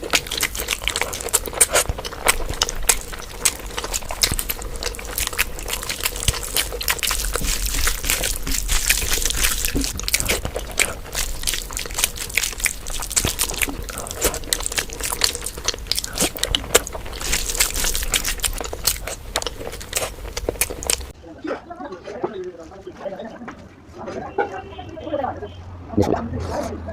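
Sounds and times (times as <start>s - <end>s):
wet chewing and lip-smacking: 0.0s - 21.2s.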